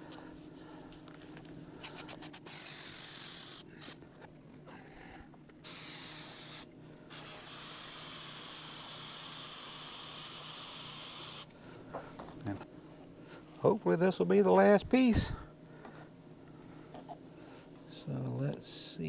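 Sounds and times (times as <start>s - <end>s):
aerosol spray hissing: 2.0s - 4.0s, 5.6s - 11.5s.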